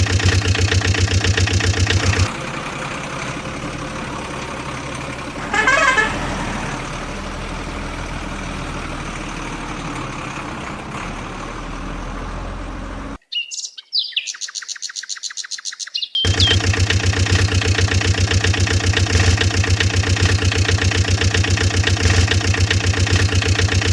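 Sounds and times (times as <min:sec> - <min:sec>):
vehicle engine running: 0:00.0 - 0:13.2, 0:16.2 - 0:23.9
loud horn-like burst: 0:05.4 - 0:06.8.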